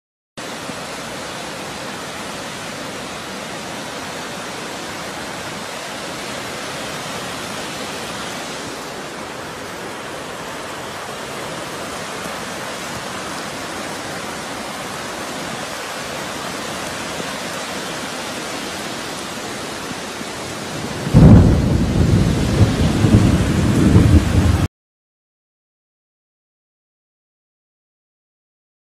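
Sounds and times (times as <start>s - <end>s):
heavy rain: 0.4s - 24.7s
low rumble of thunder: 20.8s - 24.7s.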